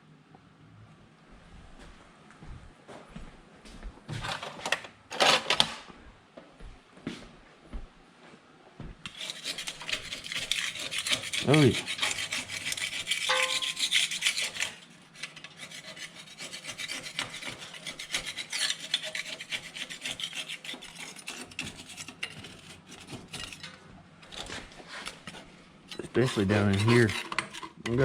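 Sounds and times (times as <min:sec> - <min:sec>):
brush scrubbing dirt: 0:09.1 - 0:14.9, 0:26.0 - 0:27.6.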